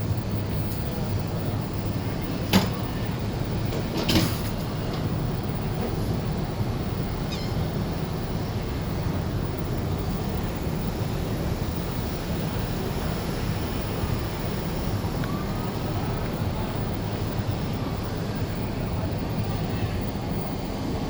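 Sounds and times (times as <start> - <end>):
ship low rumble: 0.0 - 21.0.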